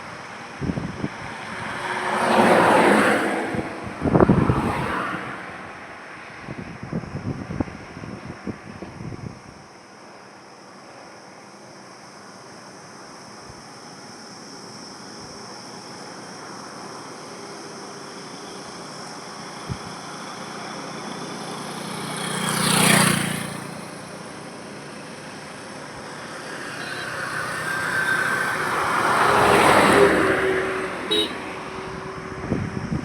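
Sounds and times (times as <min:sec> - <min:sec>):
vehicle passing by: 0:01.4 - 0:05.9, 0:20.4 - 0:33.0.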